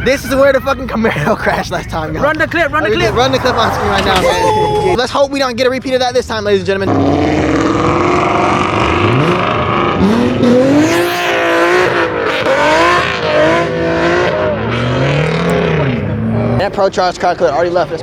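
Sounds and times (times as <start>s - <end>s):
car engine revving hard: 2.9s - 4.4s, 6.8s - 16.7s.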